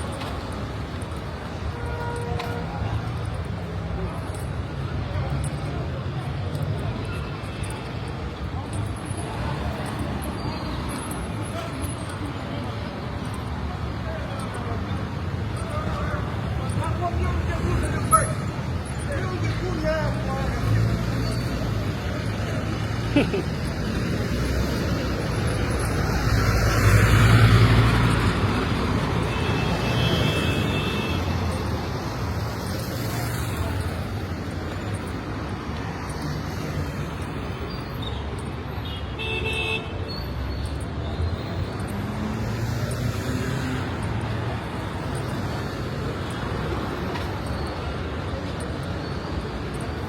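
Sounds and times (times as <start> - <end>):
vehicles passing: 0.0 - 50.0
vehicle horns tooting: 38.8 - 40.1.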